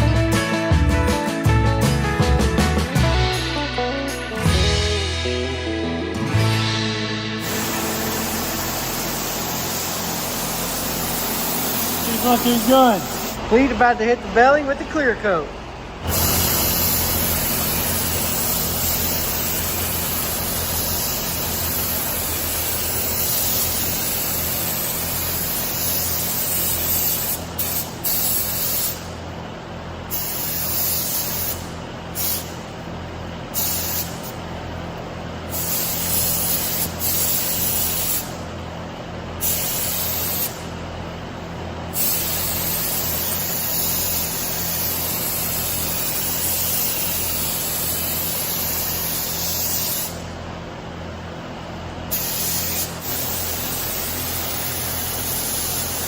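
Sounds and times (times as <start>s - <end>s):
steady low hum: 3.0s - 56.0s
paint spray gun hissing: 7.4s - 13.4s, 16.0s - 29.2s, 30.1s - 32.6s, 33.5s - 34.4s, 35.5s - 38.4s, 39.4s - 40.7s, 41.9s - 50.3s, 52.1s - 56.0s.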